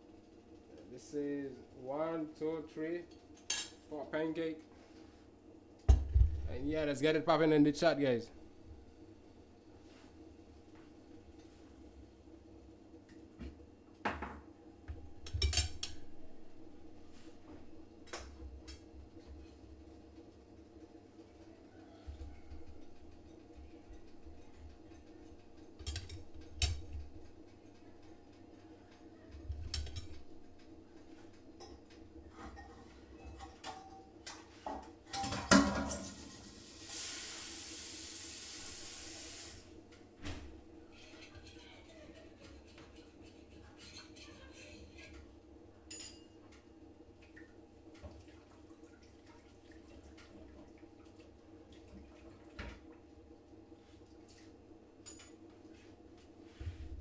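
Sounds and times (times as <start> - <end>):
cutlery clinking against a plate: 3.4 - 3.8, 42.4 - 45.2, 45.9 - 46.6
dishes and utensils clinking: 31.6 - 36.6, 41.0 - 45.2
dishes clattering: 31.6 - 36.6
steady hiss: 36.0 - 39.7.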